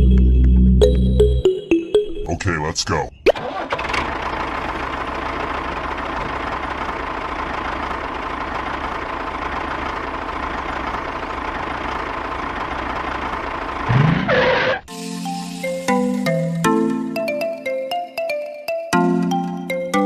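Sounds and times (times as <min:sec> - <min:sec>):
small engine running steadily: 0:03.7 - 0:14.7.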